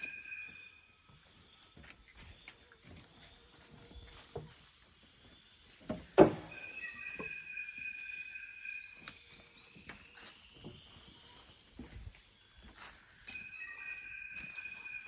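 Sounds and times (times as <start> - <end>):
high whistling animal call: 0.0 - 0.9, 6.4 - 9.3.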